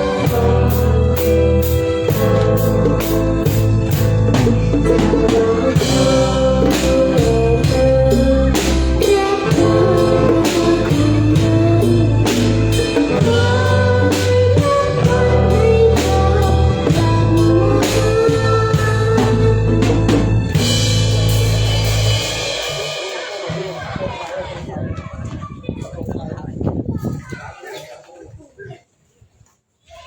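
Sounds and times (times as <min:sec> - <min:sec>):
person singing: 0:00.0 - 0:20.3
live band playing: 0:00.0 - 0:25.1.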